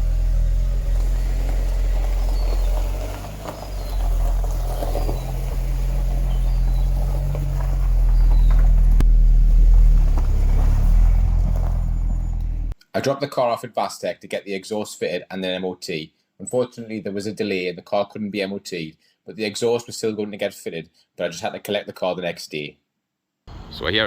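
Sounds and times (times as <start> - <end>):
car engine running through exhaust: 0.0 - 12.8
faint birds chirping: 0.0 - 12.8.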